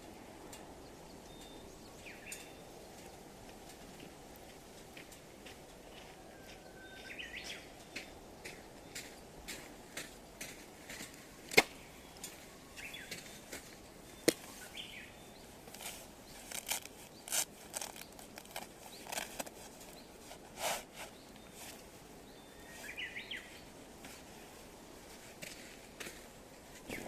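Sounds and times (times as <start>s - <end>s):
birds chirping: 0.0s - 27.0s
firewood crackling: 7.7s - 27.0s.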